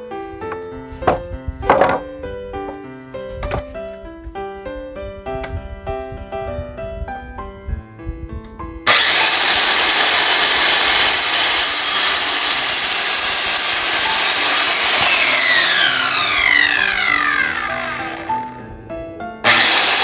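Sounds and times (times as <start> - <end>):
piano music: 0.0 - 20.0
power saw cutting wood: 8.9 - 18.6, 19.4 - 20.0
saw motor spinning down: 8.9 - 18.6, 19.4 - 20.0.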